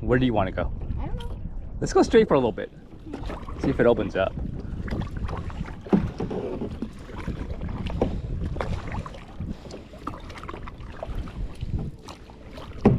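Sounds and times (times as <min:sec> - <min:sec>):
wind rumble on microphone: 0:00.0 - 0:12.9
kayak paddles splashing in water: 0:02.7 - 0:12.9.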